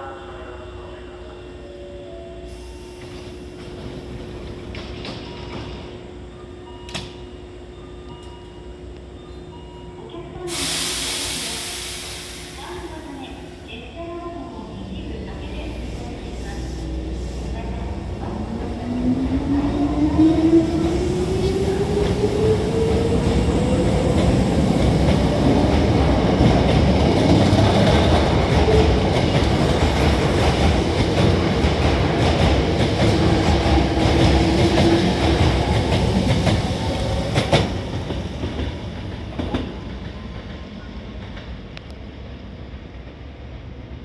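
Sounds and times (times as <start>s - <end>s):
train wheels clattering on rails: 23.2s - 41.6s.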